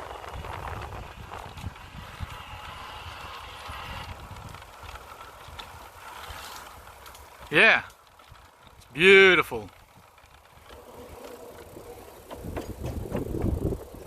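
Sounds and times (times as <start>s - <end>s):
wind rumbling on microphone: 0.0s - 7.5s, 9.7s - 14.0s
bicycle rattles and clicks: 0.0s - 14.0s
bicycle tyre noise on trail: 0.0s - 14.0s.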